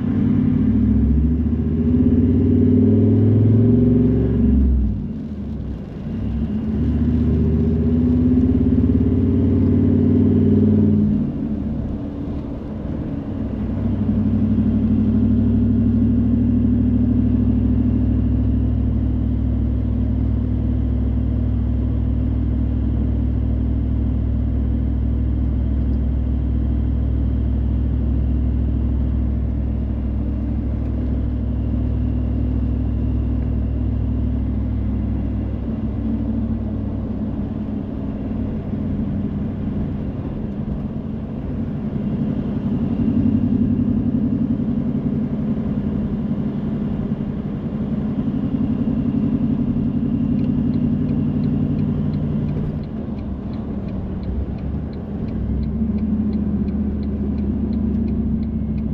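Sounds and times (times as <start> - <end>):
car engine and road noise: 0.0 - 58.9
faint regular ticks: 50.4 - 58.9.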